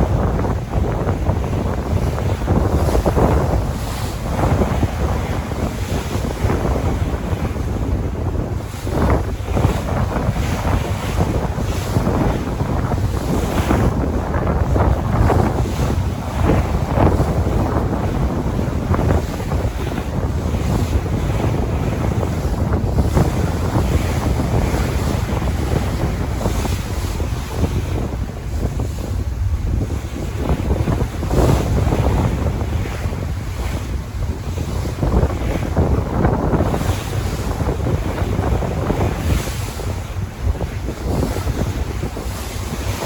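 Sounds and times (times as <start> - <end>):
sea waves washing and splashing: 0.0 - 43.0
wind buffeting microphone: 0.0 - 43.0.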